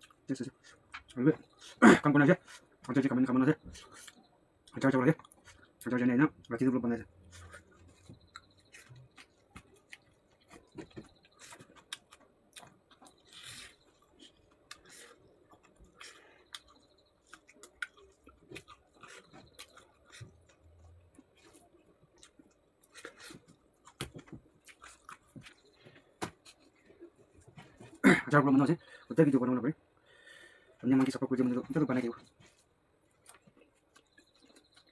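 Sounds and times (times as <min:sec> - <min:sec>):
person chewing with mouth smacks: 0:07.2 - 0:28.0, 0:32.2 - 0:34.9.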